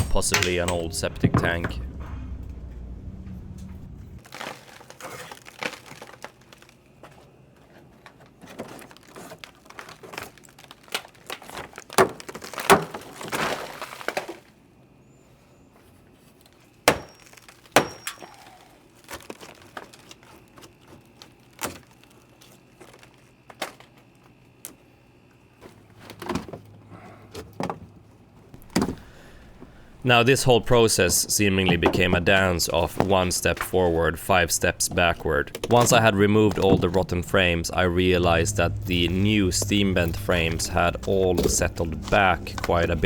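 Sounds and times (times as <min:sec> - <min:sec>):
sharp strikes: 0:00.0 - 0:04.2
tools knocking and scraping: 0:00.0 - 0:04.2, 0:28.6 - 0:37.3.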